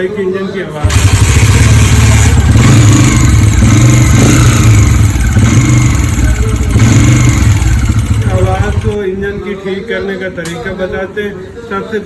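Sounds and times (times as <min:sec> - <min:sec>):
motorcycle engine tappet clatter: 0:00.9 - 0:09.0.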